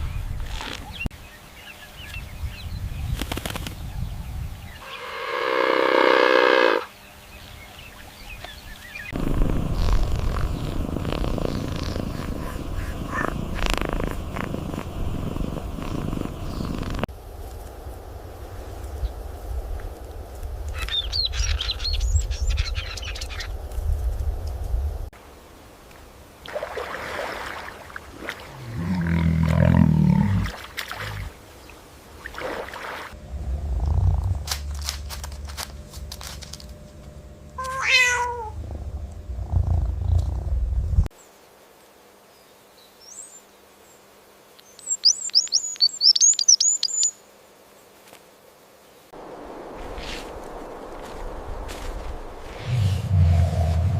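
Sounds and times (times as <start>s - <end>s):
low rumbling: 33.2s - 37.6s, 38.4s - 41.1s, 49.2s - 53.9s
cat meowing: 37.6s - 38.6s.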